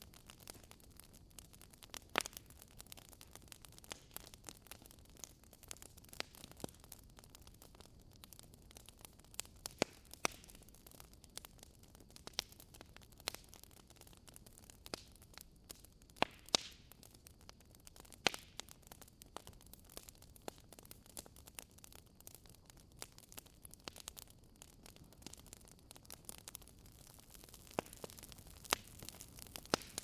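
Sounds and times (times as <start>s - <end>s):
faint steady hiss: 0.0s - 30.0s
fireplace logs crackling: 0.1s - 7.0s, 17.8s - 30.0s.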